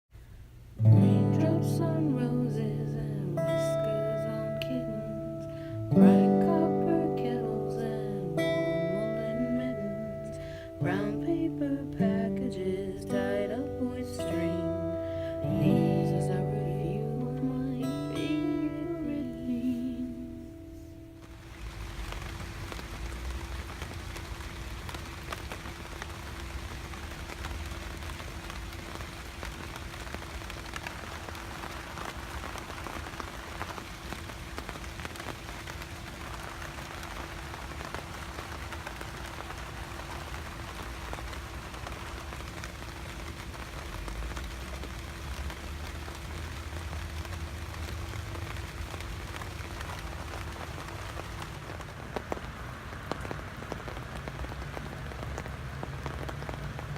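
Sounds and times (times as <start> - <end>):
faint steady hum: 0.1 - 56.9
rain pattering: 0.1 - 56.9.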